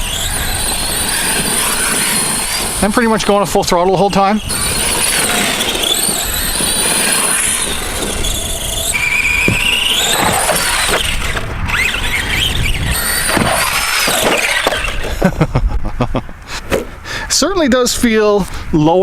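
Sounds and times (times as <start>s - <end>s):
electric motor whining: 0.0s - 15.2s
rumble of tyres and wind: 0.0s - 19.0s.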